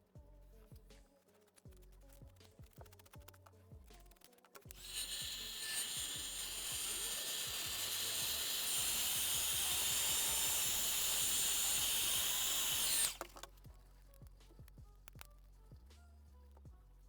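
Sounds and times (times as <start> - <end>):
rushing air hiss: 4.8 - 13.2.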